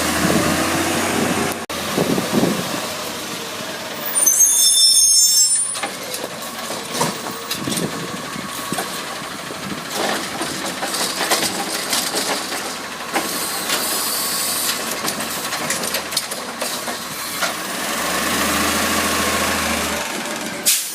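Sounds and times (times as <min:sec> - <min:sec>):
garbage truck engine running: 0:05.8 - 0:20.9
knocks and clatter: 0:09.9 - 0:13.8.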